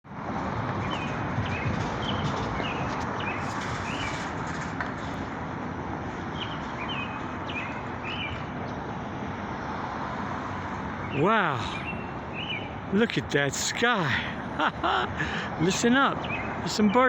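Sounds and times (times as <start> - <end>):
small birds chirping: 0.8 - 4.3, 6.3 - 8.9, 11.0 - 12.9, 15.2 - 17.0.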